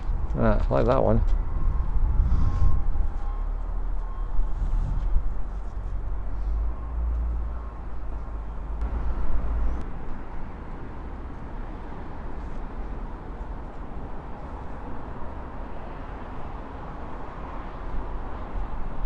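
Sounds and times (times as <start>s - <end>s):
strong wind buffeting microphone: 0.0s - 10.6s.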